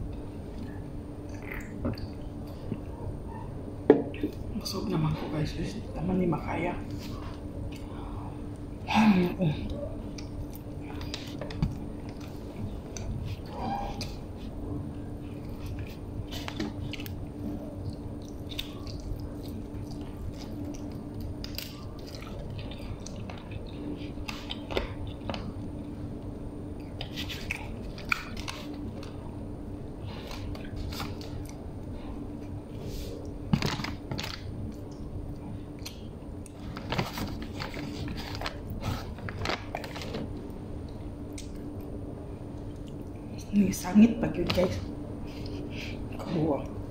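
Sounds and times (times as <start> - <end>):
faint steady hum: 0.0 - 46.9
person chewing crunchy food: 10.0 - 29.2.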